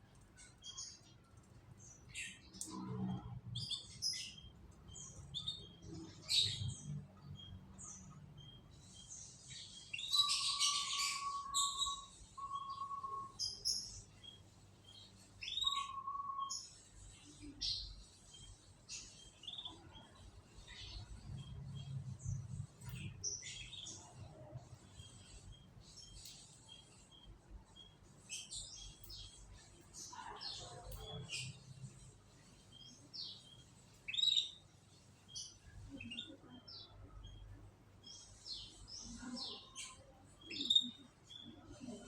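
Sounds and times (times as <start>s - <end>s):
canaries chirping and twittering: 0.1s - 42.0s.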